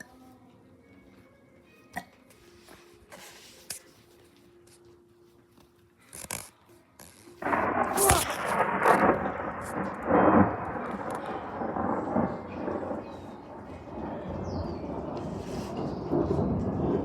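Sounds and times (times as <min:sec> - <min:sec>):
low thunder rumble: 0:07.4 - 0:17.0
thunder clap rolling: 0:07.4 - 0:17.0.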